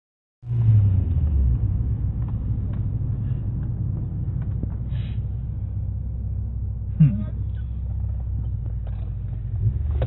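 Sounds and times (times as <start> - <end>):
car engine idling: 0.4 - 10.0.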